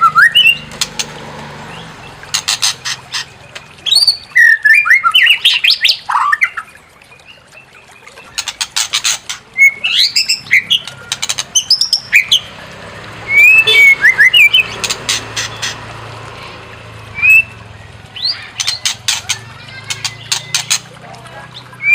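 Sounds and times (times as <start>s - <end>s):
bird singing whistled phrases: 0.0s - 0.7s, 3.8s - 8.3s, 9.6s - 12.5s, 13.3s - 14.7s, 17.2s - 18.9s, 21.5s - 21.9s
bird harsh rattling chatters: 2.2s - 3.8s, 8.3s - 12.4s, 14.6s - 16.7s, 18.1s - 21.9s.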